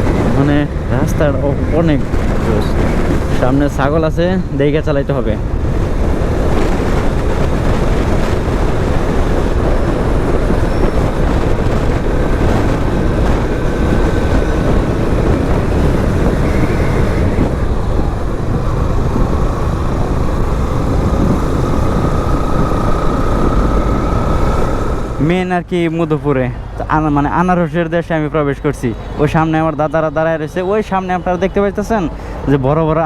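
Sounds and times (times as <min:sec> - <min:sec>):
wind rushing over microphone: 0:00.0 - 0:33.0
motorcycle engine: 0:05.4 - 0:25.4.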